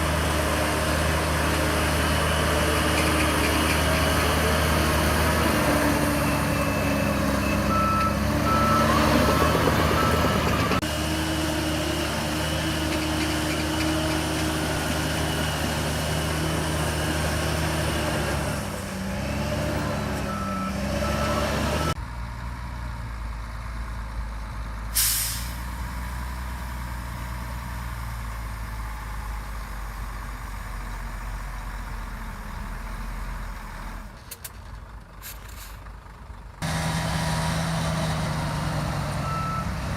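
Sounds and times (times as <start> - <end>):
diesel dump truck engine: 0.0 - 39.9
reversing alarm beeping: 6.0 - 10.8, 20.3 - 22.0, 39.2 - 39.8
air brakes hiss: 24.9 - 25.7, 35.2 - 35.8.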